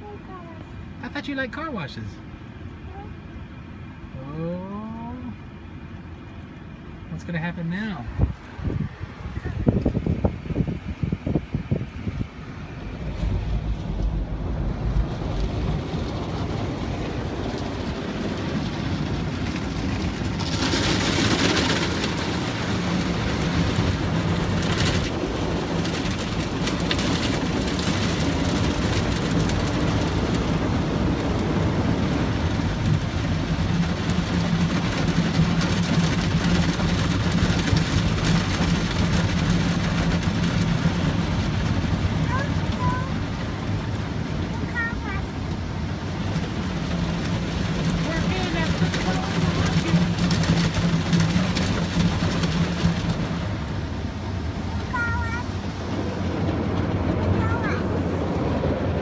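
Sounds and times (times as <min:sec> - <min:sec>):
low machine hum: 0:02.0 - 0:26.6.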